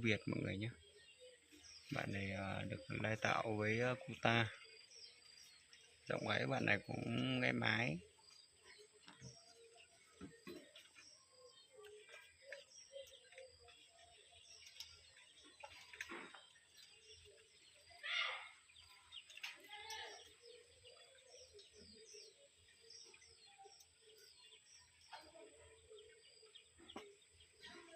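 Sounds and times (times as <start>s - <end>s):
small birds chirping: 0.0s - 27.9s.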